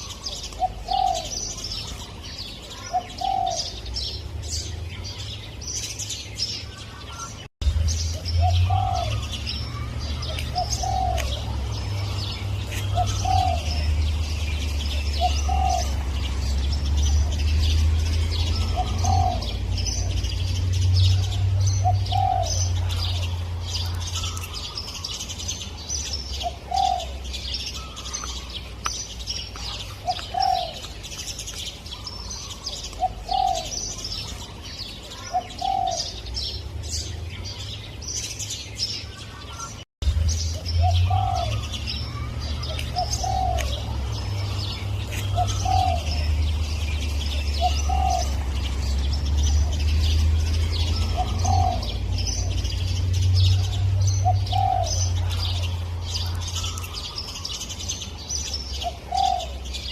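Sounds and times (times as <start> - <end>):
dove cooing: 0.0 - 2.0, 2.6 - 3.9, 8.4 - 16.4, 18.4 - 20.2, 21.1 - 25.1, 26.4 - 27.2, 29.7 - 31.0, 32.0 - 34.3, 35.1 - 36.2, 40.8 - 48.7, 50.7 - 52.8, 53.5 - 57.1, 58.8 - 59.6
small birds chirping: 0.0 - 59.9.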